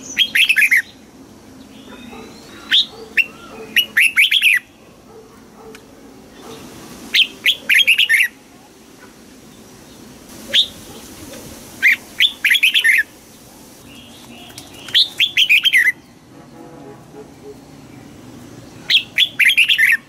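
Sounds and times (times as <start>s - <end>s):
bird singing whistled notes: 0.0s - 1.0s, 1.7s - 4.7s, 7.1s - 8.4s, 10.5s - 10.8s, 11.8s - 13.1s, 13.8s - 16.2s, 18.8s - 20.0s.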